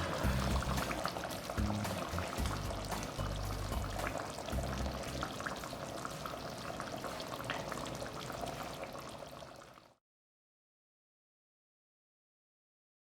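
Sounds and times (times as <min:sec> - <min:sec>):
background music: 0:00.0 - 0:06.2
curry bubbling in a pot: 0:00.0 - 0:10.0.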